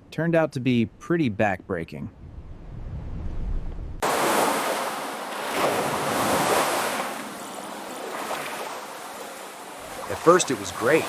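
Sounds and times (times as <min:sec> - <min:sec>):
wind buffeting microphone: 0:02.1 - 0:10.1
water rushing and splashing: 0:04.0 - 0:11.0.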